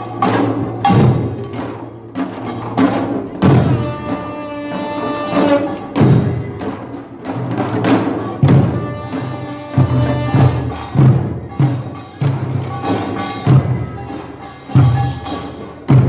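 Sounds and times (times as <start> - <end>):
deep drum strokes: 0.0 - 16.0
sustained melody: 8.4 - 14.8.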